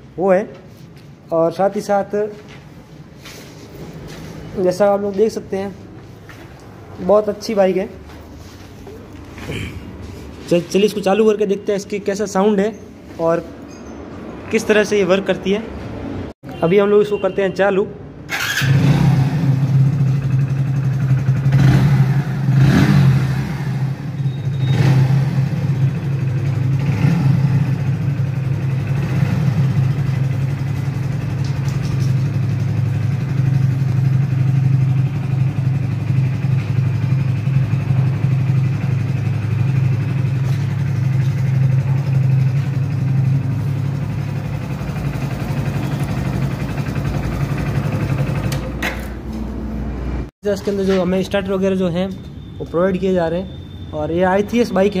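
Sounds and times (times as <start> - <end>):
motorcycle engine idling: 19.5 - 22.5, 23.8 - 48.8.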